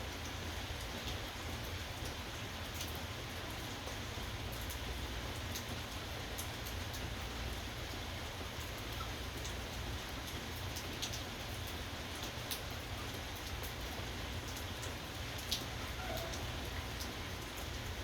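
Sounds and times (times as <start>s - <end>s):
rainfall: 0.0s - 18.0s.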